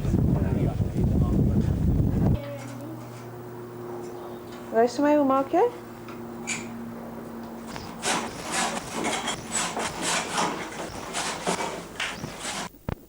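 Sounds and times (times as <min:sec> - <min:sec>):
rhythmic scraping strokes: 0:07.5 - 0:12.7.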